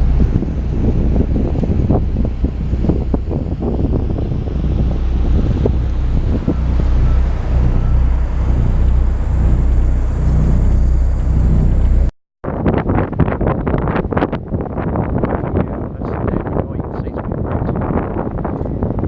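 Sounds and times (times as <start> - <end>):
bus engine rumble: 0.0 - 13.5
wind buffeting microphone: 0.0 - 19.0.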